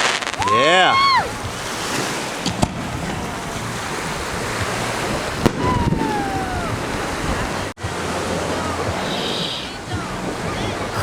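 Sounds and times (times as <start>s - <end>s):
surf: 0.0s - 11.0s
wind on microphone: 0.3s - 11.0s
distant firework pops: 2.3s - 3.4s, 5.4s - 5.8s.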